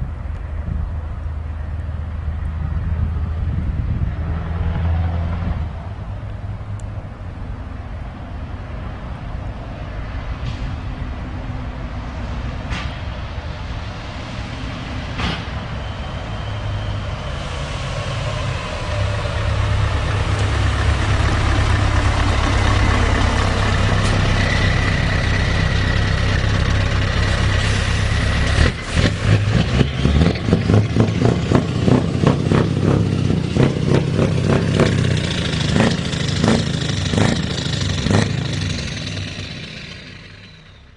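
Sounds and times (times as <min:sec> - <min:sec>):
diesel truck engine running: 0:00.0 - 0:40.9.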